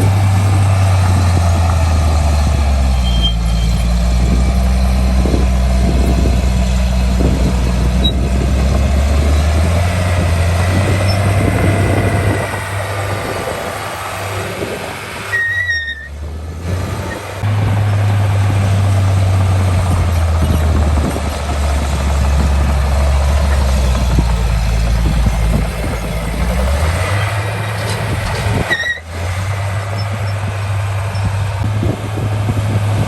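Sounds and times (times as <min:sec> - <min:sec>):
diesel machinery engine drone: 0:00.0 - 0:33.0
short high squeal: 0:03.0 - 0:03.8, 0:15.3 - 0:16.2.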